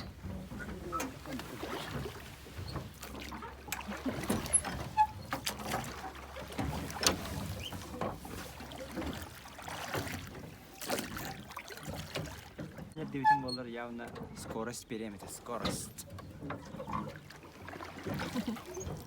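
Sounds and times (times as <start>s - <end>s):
oars knocking and splashing: 0.0s - 19.0s.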